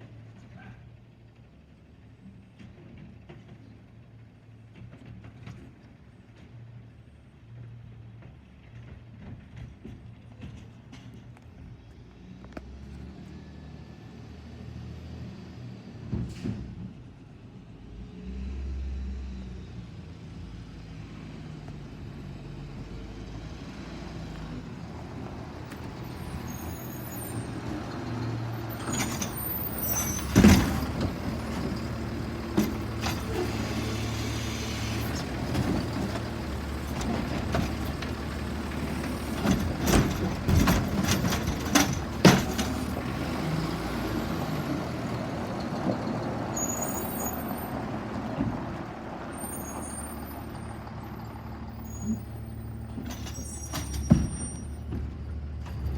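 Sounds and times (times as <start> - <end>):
garbage truck diesel engine: 0.0 - 55.9.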